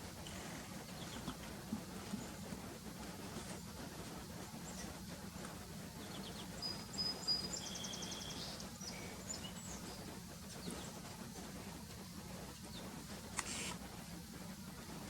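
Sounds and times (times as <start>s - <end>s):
steady low hum: 0.0s - 15.0s
songbirds calling: 0.2s - 2.4s, 5.8s - 11.1s
bird trill: 6.1s - 10.0s.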